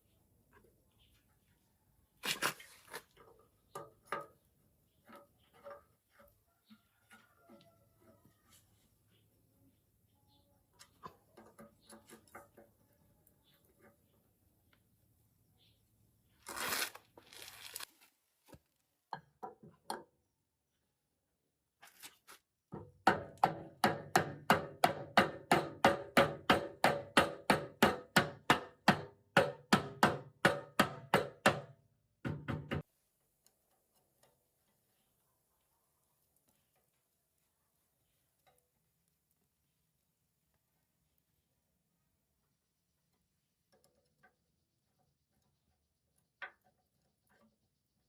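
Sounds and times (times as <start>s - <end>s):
scraping rustle: 16.4s - 18.6s.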